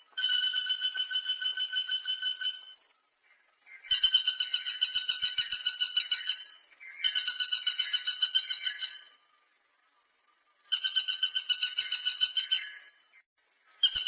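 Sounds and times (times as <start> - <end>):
woodpecker calling: 0.0 - 9.3, 10.5 - 14.0.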